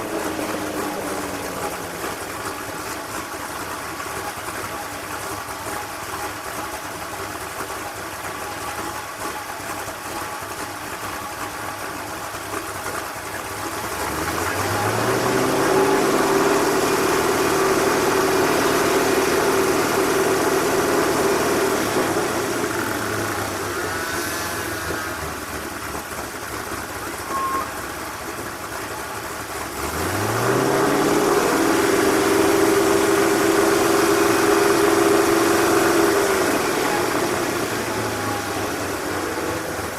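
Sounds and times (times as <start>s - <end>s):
race car engine revving: 0.0s - 3.8s, 13.8s - 26.3s, 29.0s - 39.9s.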